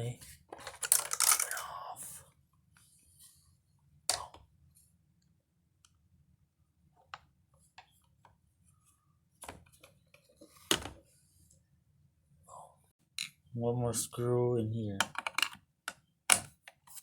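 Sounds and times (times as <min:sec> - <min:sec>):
clicks and knocks of parts handled: 0:00.5 - 0:01.7, 0:15.0 - 0:17.0.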